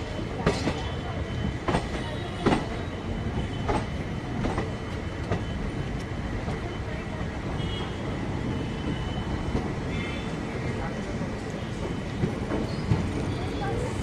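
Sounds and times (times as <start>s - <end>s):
train rumble: 0.0s - 14.0s
train wheels clacking over rail joints: 0.3s - 6.7s.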